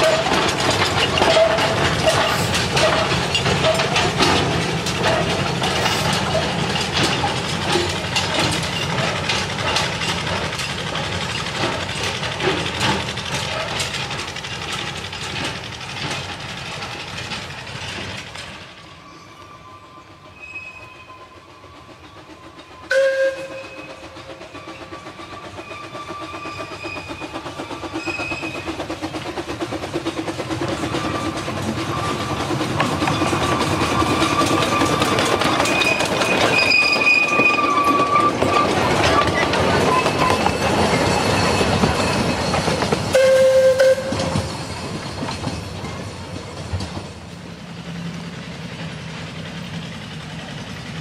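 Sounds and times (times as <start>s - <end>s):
train toot: 0.0s - 0.6s, 18.8s - 28.8s, 30.7s - 45.0s
wheel squeal: 0.0s - 29.3s, 30.0s - 46.2s
train running clatter: 0.0s - 51.0s.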